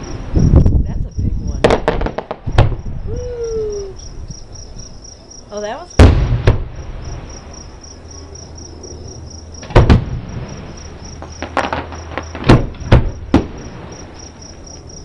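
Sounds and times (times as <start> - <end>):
crickets chirping: 0.0 - 15.0
distant firework bangs: 1.5 - 3.0, 5.9 - 7.8, 8.6 - 14.8.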